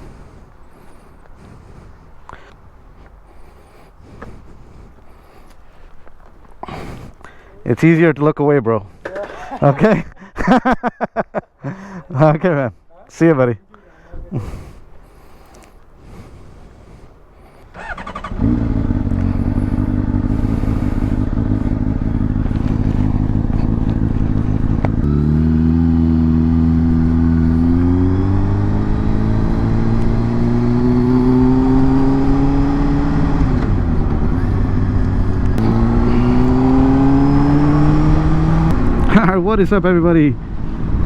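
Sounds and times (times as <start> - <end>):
sportbike engine accelerating: 17.8 - 39.3.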